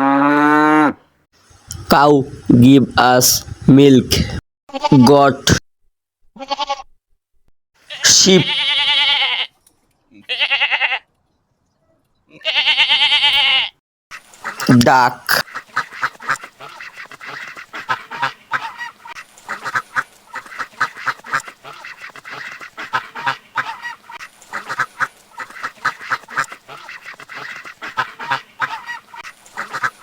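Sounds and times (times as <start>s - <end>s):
duck quacking: 14.4s - 30.0s.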